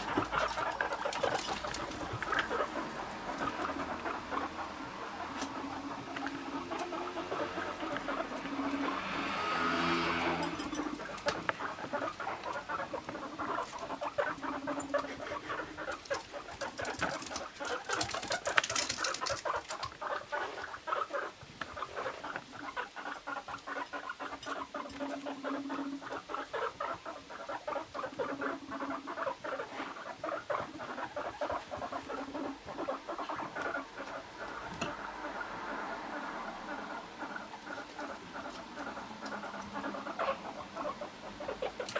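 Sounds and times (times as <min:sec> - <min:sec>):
guinea pigs pattering clicks: 0:00.0 - 0:08.9, 0:10.4 - 0:35.4, 0:36.7 - 0:41.9
guinea pig low buzzing: 0:01.7 - 0:17.9, 0:19.4 - 0:41.9.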